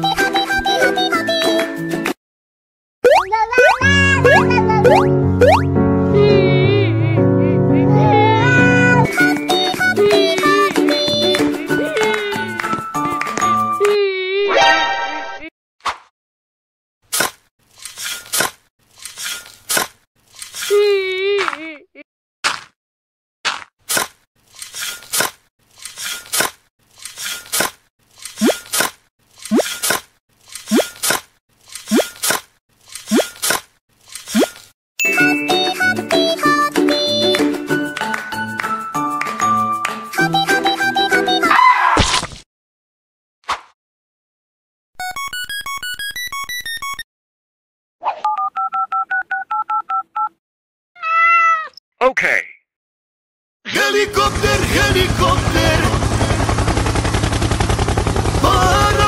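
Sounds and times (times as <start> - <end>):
shovel scooping dirt: 17.1 - 20.8, 23.5 - 34.7
keypad beeps: 45.0 - 47.0, 48.3 - 50.3
two-tone dialing beeps: 45.0 - 47.0, 48.2 - 50.3.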